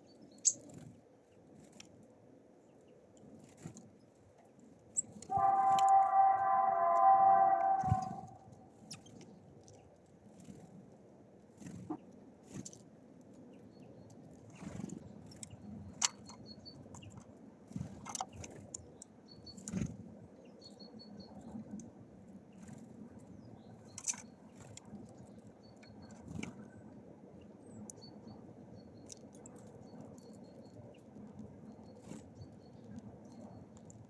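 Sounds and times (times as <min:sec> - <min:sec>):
birds pecking and scrabbling: 0:00.2 - 0:02.1, 0:03.1 - 0:20.1
high bird chirps: 0:05.3 - 0:08.4.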